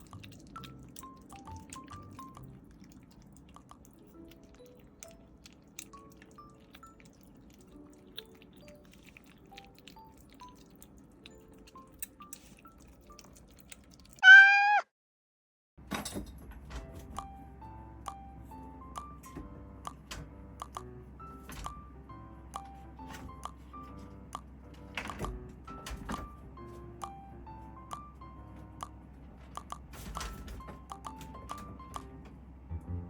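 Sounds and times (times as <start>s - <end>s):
slow quiet background music: 0.0s - 14.2s, 15.9s - 33.0s
cat meow: 14.2s - 14.9s.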